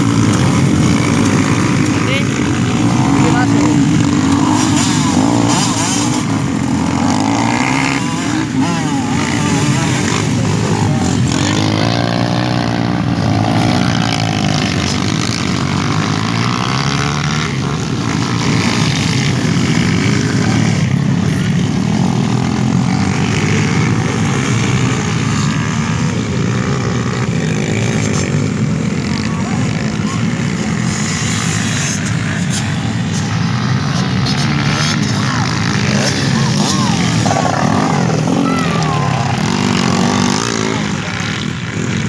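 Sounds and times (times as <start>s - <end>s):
dirt bike engines revving: 0.0s - 42.0s.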